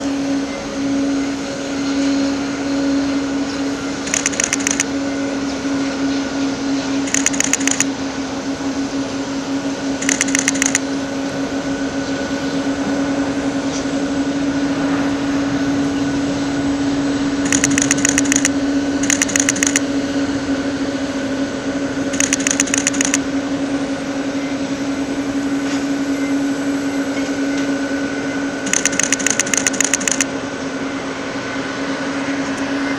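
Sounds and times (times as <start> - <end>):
engine drone: 0.0 - 32.9
rapid clicking bursts: 4.0 - 4.8, 7.0 - 7.9, 10.0 - 10.8, 17.4 - 19.8, 22.1 - 23.2, 28.6 - 30.3.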